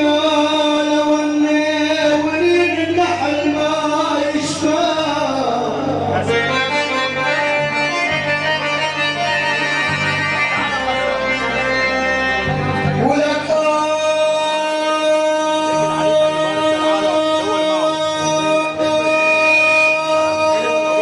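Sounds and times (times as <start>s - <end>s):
bass line: 0.0s - 21.0s
reedy keyed instrument melody: 2.2s - 21.0s.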